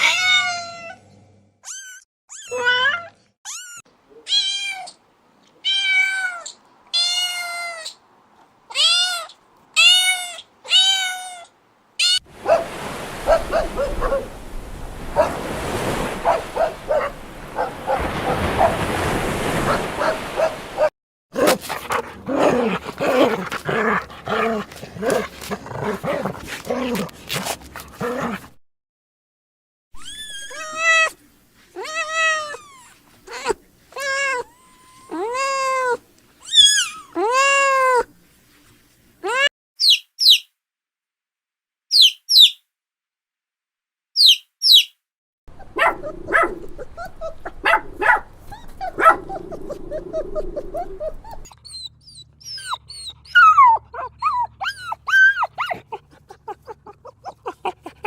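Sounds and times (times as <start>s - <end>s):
animal cries: 8.7s - 12.6s, 30.0s - 31.2s, 31.8s - 38.1s, 45.6s - 58.0s
cat meowing: 30.0s - 31.2s.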